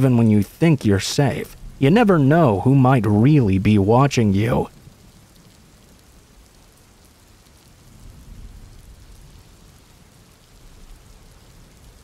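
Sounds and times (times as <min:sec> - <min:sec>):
rain on pavement: 0:00.0 - 0:12.0
low rumble: 0:01.4 - 0:04.0.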